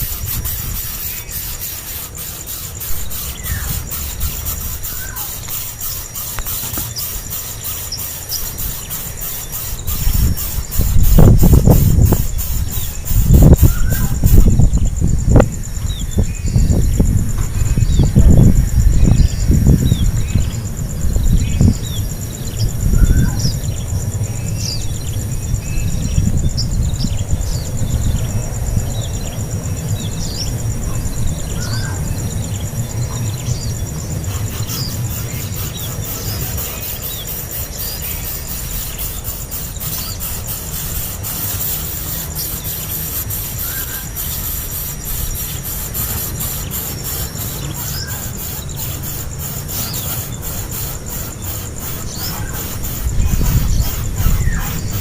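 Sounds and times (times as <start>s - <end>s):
nestling birds begging cheeps: 0.0s - 16.8s, 30.2s - 55.0s.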